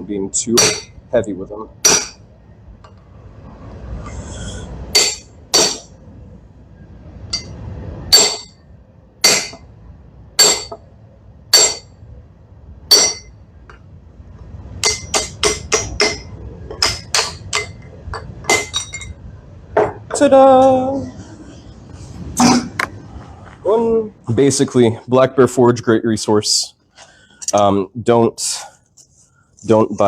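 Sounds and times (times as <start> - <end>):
hammer striking steel on anvil: 0.5 - 1.0, 1.8 - 2.2, 4.9 - 5.9, 7.3 - 8.6, 9.2 - 9.6, 10.4 - 10.8, 11.5 - 11.9, 12.9 - 13.4, 14.8 - 19.1.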